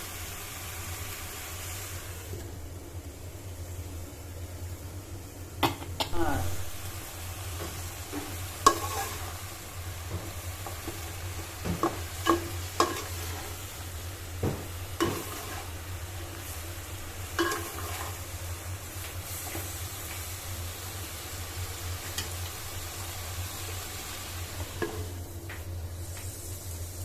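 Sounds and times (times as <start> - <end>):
vegetables sizzling in a pan: 0.0 - 27.0
spatula knocking and scraping pan: 7.6 - 9.4, 10.0 - 13.6, 14.4 - 15.8, 17.4 - 18.2.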